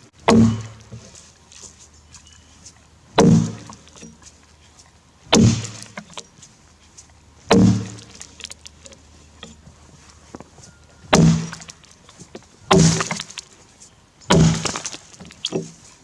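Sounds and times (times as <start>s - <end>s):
axe chopping log: 0.2s - 1.2s, 3.2s - 3.8s, 5.3s - 6.1s, 7.5s - 8.2s, 11.1s - 11.7s, 12.7s - 13.3s, 14.3s - 15.7s.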